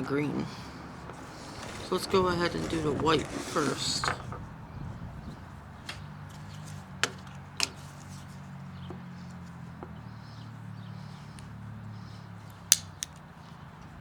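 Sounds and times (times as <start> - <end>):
sharp clicks: 12.7 - 13.2.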